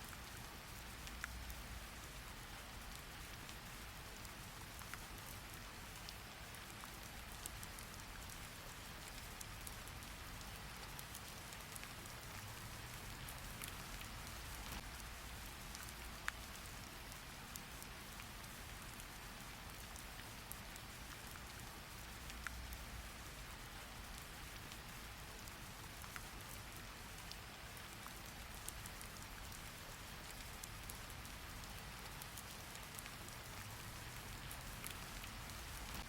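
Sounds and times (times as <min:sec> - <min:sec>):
steady rain falling: 0:00.0 - 0:36.0.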